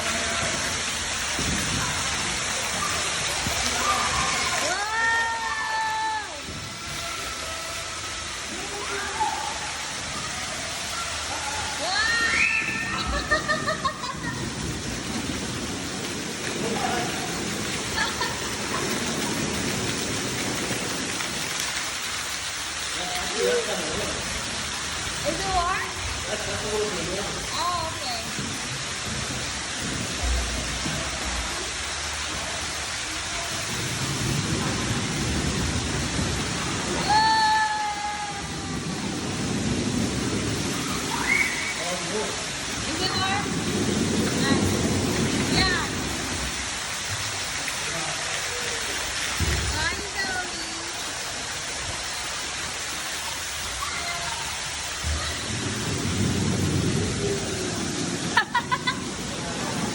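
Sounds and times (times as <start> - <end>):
flowing splashing water: 0.0 - 59.9
low rumble: 23.6 - 37.2.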